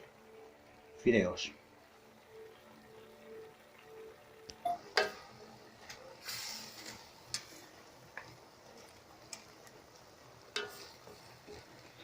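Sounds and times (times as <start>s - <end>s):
dry noodles clinking into pan: 10.5s - 11.6s.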